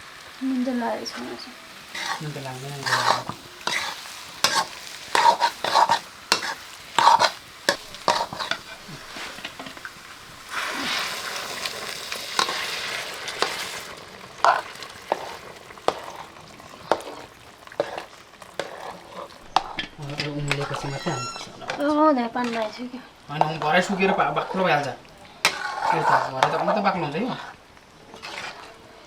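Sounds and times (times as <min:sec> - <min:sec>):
sizzling: 0:00.0 - 0:29.0
spoon scraping a cooking pot: 0:01.9 - 0:09.9, 0:12.3 - 0:13.8, 0:14.4 - 0:22.8, 0:23.4 - 0:28.8.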